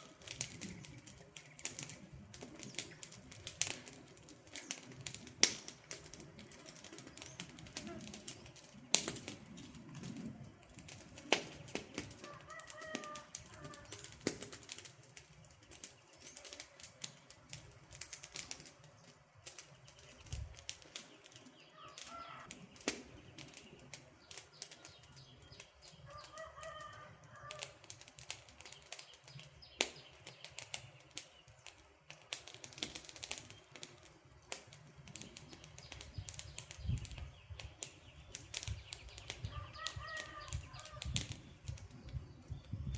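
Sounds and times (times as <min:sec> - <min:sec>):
campfire crackling and popping: 0:00.0 - 0:42.9
flames rushing: 0:00.0 - 0:42.9.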